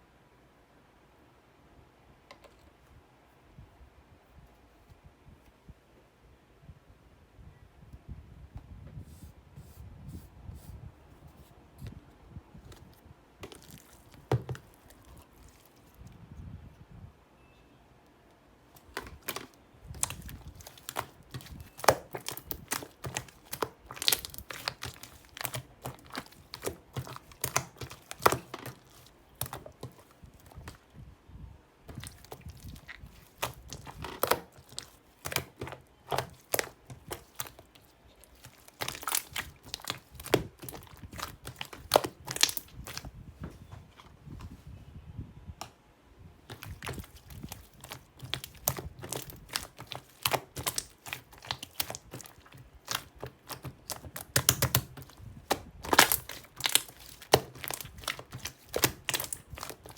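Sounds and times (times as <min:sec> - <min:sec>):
crinkling and rustling handling: 0:08.9 - 0:16.9, 0:18.0 - 0:31.2, 0:31.8 - 0:44.8, 0:46.4 - 0:59.9.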